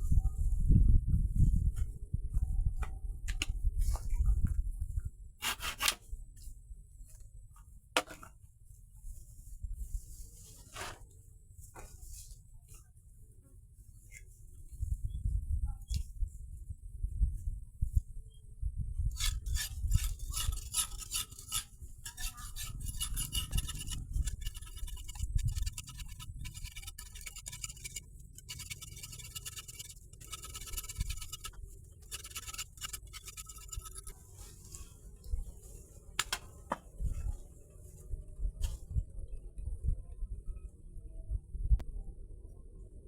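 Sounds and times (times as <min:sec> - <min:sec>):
hard objects clinking and scraping: 0:19.2 - 0:34.1
steady low rumble: 0:22.6 - 0:28.4.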